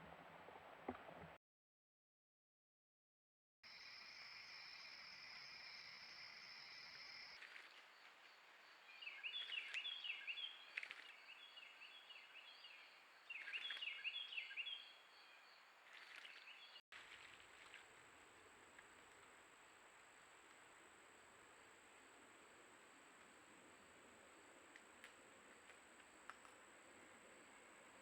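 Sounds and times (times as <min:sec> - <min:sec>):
bird chirping: 0:03.7 - 0:16.8
faint outdoor background noise: 0:03.7 - 0:28.0.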